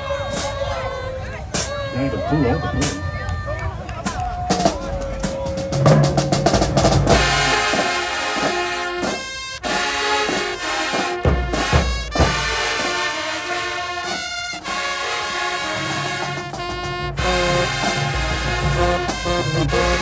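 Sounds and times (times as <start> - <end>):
drum strokes: 0.3 - 0.6, 1.5 - 1.8, 4.0 - 20.0
brass sustained chords: 7.1 - 20.0.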